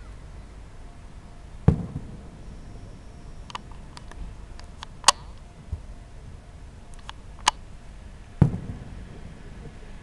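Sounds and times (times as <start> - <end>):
deep firework boom: 1.6 - 2.5, 8.4 - 10.0
distant fireworks cracks: 1.6 - 2.6, 8.4 - 10.0.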